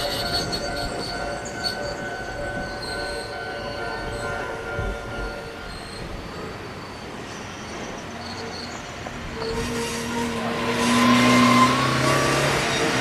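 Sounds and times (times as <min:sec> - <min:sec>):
electric train passing: 0:00.0 - 0:13.0.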